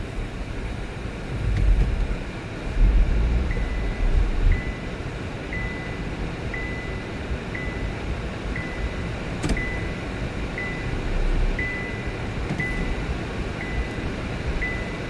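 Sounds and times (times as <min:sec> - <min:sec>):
low rumble: 0:00.7 - 0:05.9
car warning chime beeping: 0:03.4 - 0:15.0.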